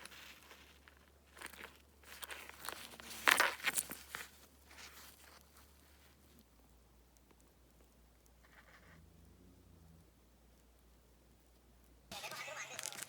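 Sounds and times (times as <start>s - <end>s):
crinkling handling noises: 0.0s - 6.6s, 12.1s - 13.0s.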